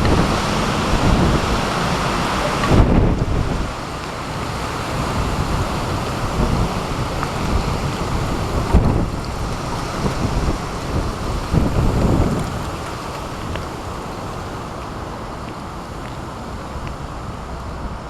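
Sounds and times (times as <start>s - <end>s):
wind and rain hiss: 0.0s - 18.0s
wind buffeting microphone: 0.0s - 18.0s.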